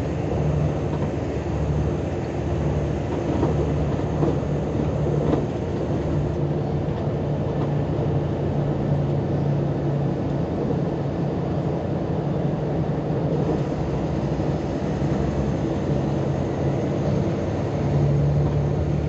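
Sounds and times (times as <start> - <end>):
bus diesel engine droning: 0.0 - 19.0.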